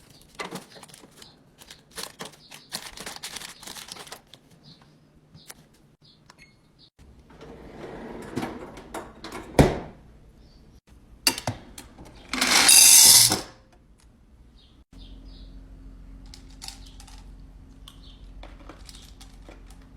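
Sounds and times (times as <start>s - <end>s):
food packaging rustling: 0.0s - 4.5s.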